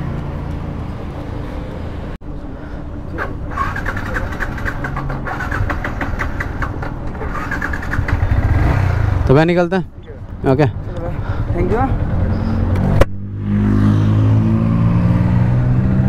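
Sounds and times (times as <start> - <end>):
motorcycle engine idling: 2.2 - 10.2.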